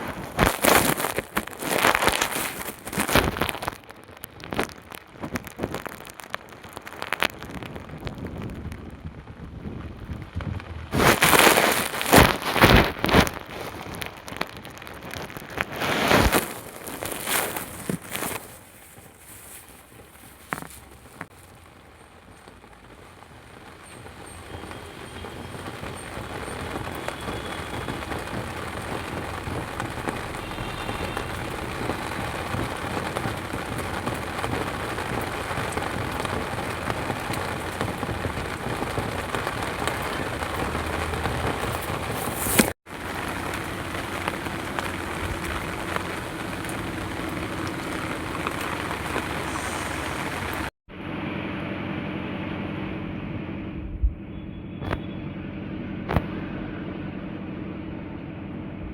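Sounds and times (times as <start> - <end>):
heavy rain falling: 0.0 - 52.0.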